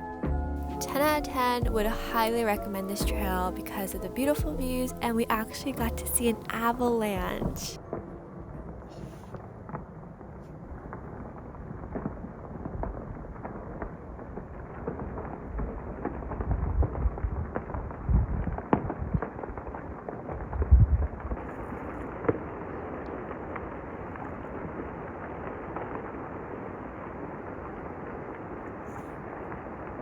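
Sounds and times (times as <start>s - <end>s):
avalanche rumbling booms: 9.5s - 28.3s.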